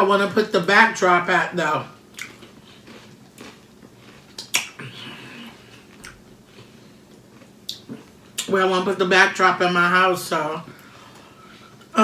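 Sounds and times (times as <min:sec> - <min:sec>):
eating clicks and smacks: 0:02.1 - 0:02.6, 0:04.3 - 0:04.8, 0:07.4 - 0:08.5.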